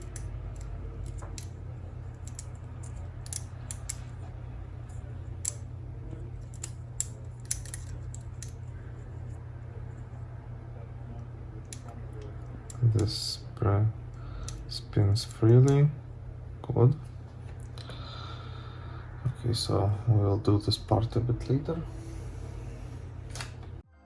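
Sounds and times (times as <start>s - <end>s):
tape mechanism clicks: 0.0s - 8.8s
steady low hum: 0.0s - 23.9s.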